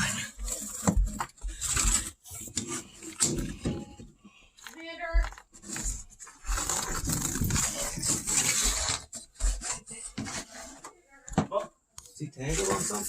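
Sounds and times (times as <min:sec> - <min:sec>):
rubbing scraping noise: 0:05.6 - 0:11.1, 0:12.4 - 0:13.0.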